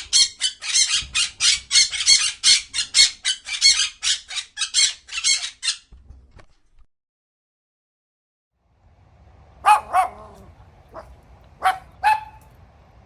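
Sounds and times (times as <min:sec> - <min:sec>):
animal high-pitched calls: 0:09.6 - 0:12.5.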